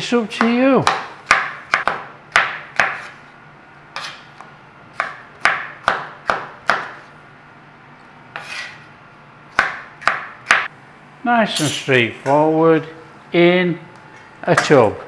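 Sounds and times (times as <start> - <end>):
kitchen fan hum: 0.0 - 15.0
knife chopping on a board: 0.4 - 3.3, 4.0 - 7.1, 8.3 - 8.8, 9.5 - 10.7
knife scraping: 2.8 - 3.3, 4.0 - 4.4, 8.3 - 9.0, 11.6 - 12.0.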